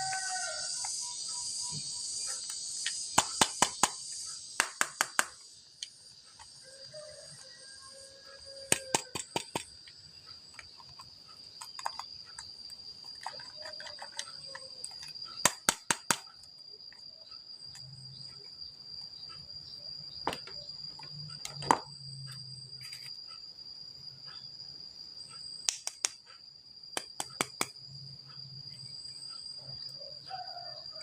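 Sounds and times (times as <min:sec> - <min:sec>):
insects trilling: 0:00.0 - 0:31.0
sharp clicks: 0:08.7 - 0:10.0, 0:13.2 - 0:16.4, 0:25.7 - 0:26.3.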